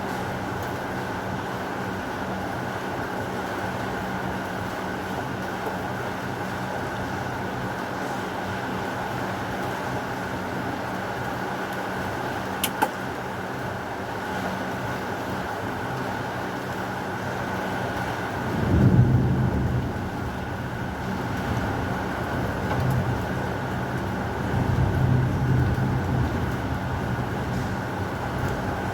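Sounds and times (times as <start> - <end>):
low thunder rumble: 18.4 - 28.9.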